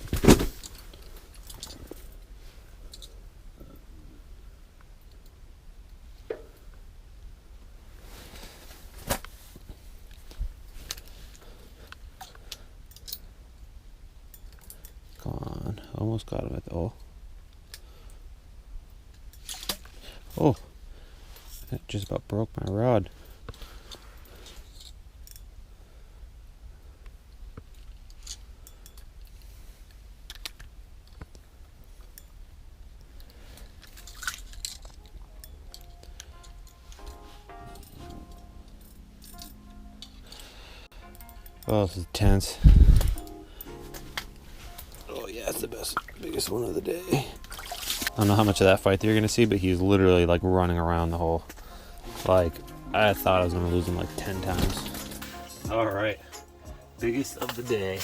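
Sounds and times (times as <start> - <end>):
wind rumble on microphone: 42.6 - 43.2.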